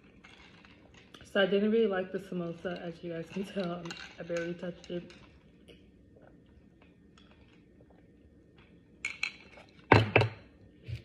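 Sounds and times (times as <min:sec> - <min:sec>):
tableware clinking: 0:09.0 - 0:10.4.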